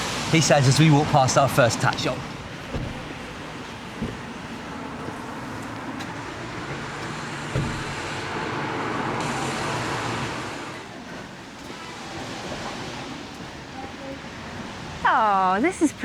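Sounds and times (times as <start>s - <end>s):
traffic hiss: 0.0s - 16.0s
single knock: 2.7s - 3.2s, 4.0s - 4.4s, 7.5s - 8.1s.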